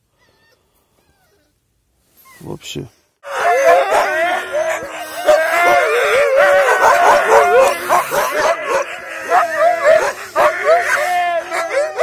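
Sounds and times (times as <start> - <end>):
sled dogs howling and yelping: 3.2 - 12.0.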